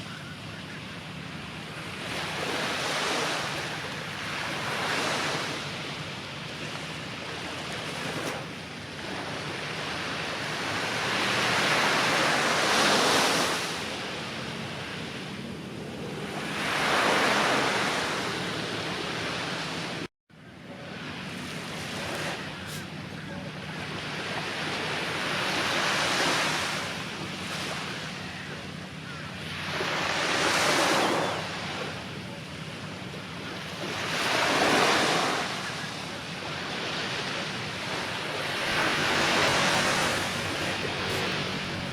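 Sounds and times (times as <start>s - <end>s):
waves breaking on beach: 0.0s - 20.1s, 20.9s - 41.9s
wind on microphone: 38.3s - 41.9s.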